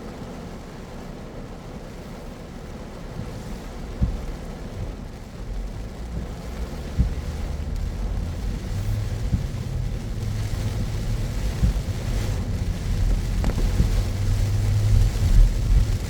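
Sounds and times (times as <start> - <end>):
car engine and tyres rumbling: 0.0 - 16.0
rain and spray hissing: 0.0 - 16.0
soft thumps: 3.2 - 5.0, 6.1 - 7.8, 9.2 - 12.4, 13.3 - 16.0.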